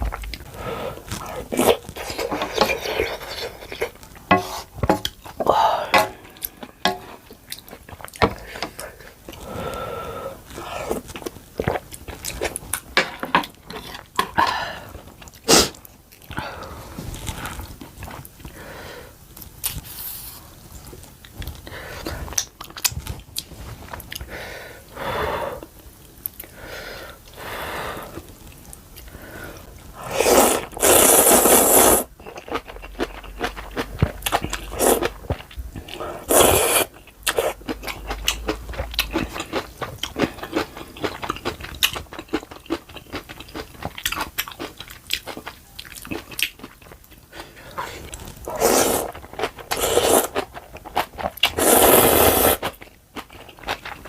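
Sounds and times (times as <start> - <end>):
chewing and crunching: 32.1 - 51.6, 52.6 - 54.0.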